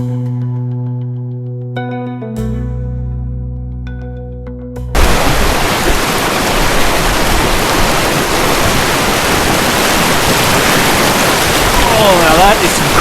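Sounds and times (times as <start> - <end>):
river rushing over rocks: 5.0 - 13.0.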